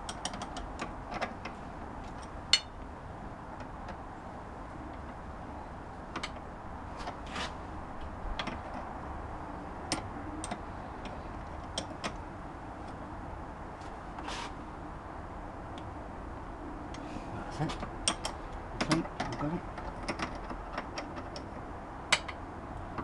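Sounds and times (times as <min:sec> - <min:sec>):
spanner clicking and tapping: 0:00.0 - 0:01.3, 0:18.0 - 0:23.0.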